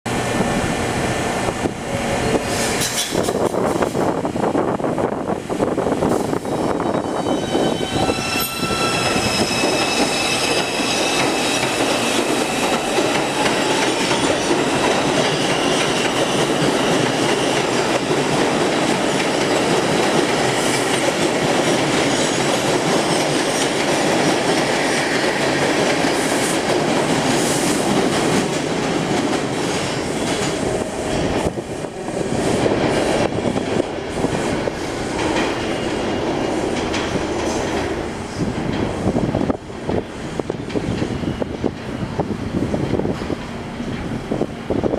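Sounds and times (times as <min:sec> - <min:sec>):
subway train rumbling: 0:00.0 - 0:44.9
wheels clattering and squealing: 0:06.2 - 0:18.3
high whining tones: 0:06.3 - 0:17.7.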